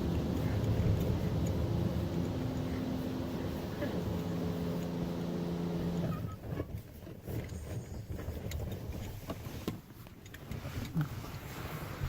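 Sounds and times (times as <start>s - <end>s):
low rumble: 0.0s - 6.0s
car wash machinery hum: 0.0s - 6.9s.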